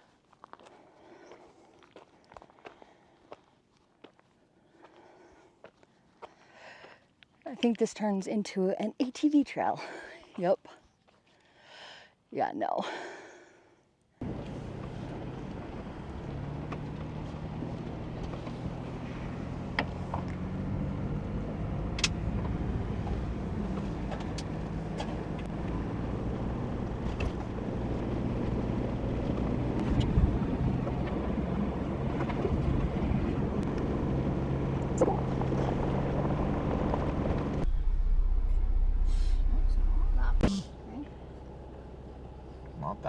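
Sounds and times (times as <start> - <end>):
vehicle engine running: 14.2 - 43.0
rumbling noise: 22.2 - 40.9.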